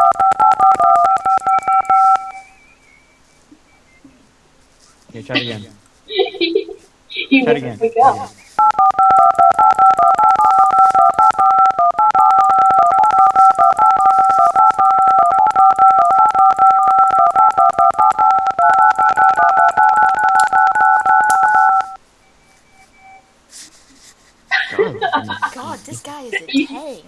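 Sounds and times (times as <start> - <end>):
telephone keypad touch tones: 0.0 - 2.6, 8.6 - 22.0.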